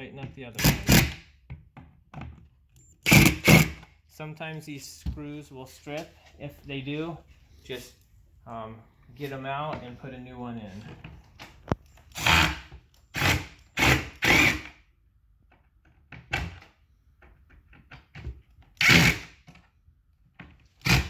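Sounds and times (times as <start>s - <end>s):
screwdriver driving screws: 0.5s - 1.3s, 2.8s - 3.9s, 12.1s - 14.8s, 18.8s - 19.4s, 20.8s - 21.0s.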